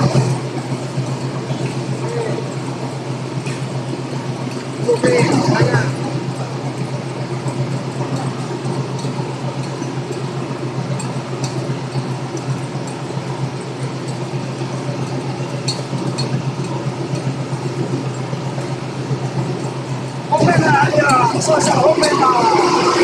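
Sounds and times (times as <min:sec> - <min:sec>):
ship engines droning: 0:00.0 - 0:23.0
light clinks: 0:03.4 - 0:20.5.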